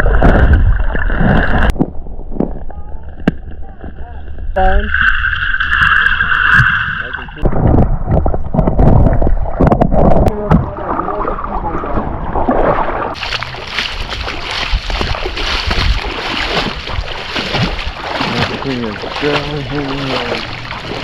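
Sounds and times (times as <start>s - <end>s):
creek water splashing: 10.3s - 21.0s
rush of flowing water: 10.4s - 21.0s.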